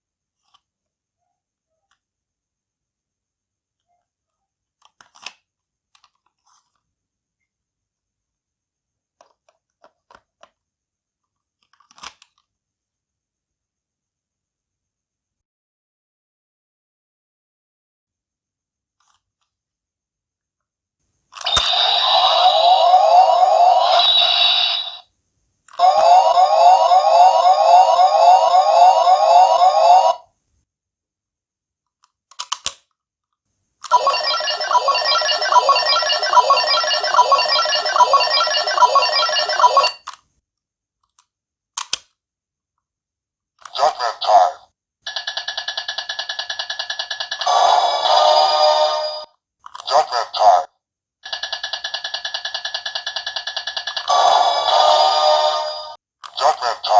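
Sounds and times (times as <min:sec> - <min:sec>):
toy electronic siren wail: 0:21.5 - 0:25.0, 0:25.8 - 0:30.2, 0:33.9 - 0:40.0.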